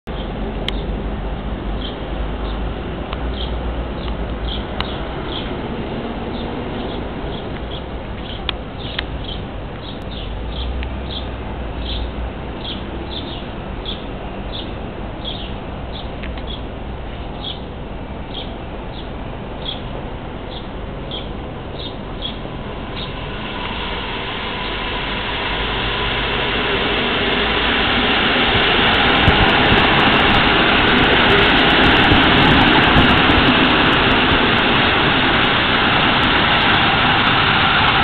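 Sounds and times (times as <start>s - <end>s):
small bird chirping: 3.3s - 5.5s, 6.3s - 16.7s, 17.3s - 17.7s, 18.3s - 19.9s, 20.5s - 23.2s
wind rumble: 17.9s - 38.0s.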